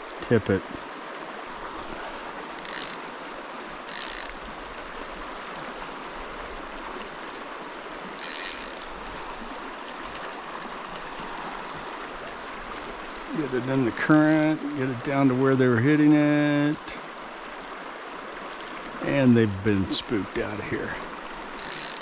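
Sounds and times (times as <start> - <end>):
mountain stream running: 0.0 - 22.0
fly reel ratchet buzzing: 2.5 - 3.1, 3.8 - 4.5, 8.2 - 9.0, 14.1 - 14.6, 21.5 - 22.0.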